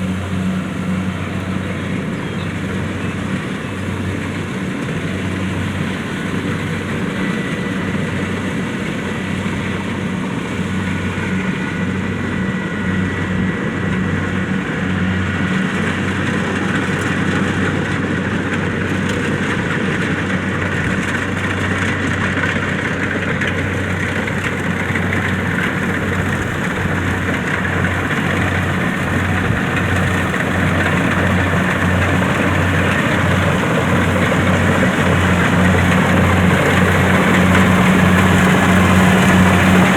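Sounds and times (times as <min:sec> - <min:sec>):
diesel engine humming: 0:00.0 - 0:39.9
threshing machinery rattling: 0:12.9 - 0:39.9.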